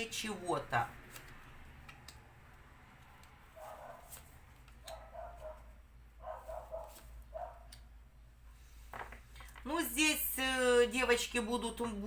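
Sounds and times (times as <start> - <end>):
dog barking faintly: 3.6 - 4.1, 4.8 - 7.7.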